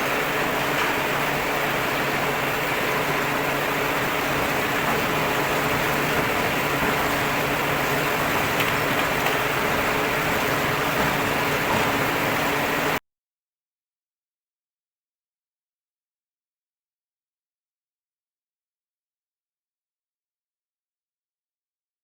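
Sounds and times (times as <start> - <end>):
machine running: 0.0 - 13.0.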